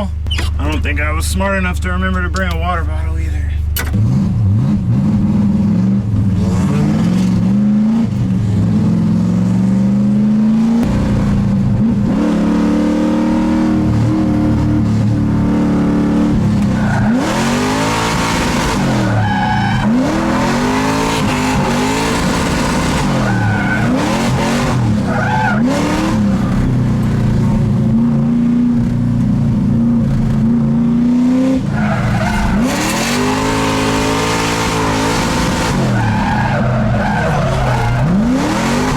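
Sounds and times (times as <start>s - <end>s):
car engine revving: 0.0s - 38.9s
tires squealing: 11.8s - 29.1s, 30.2s - 38.9s.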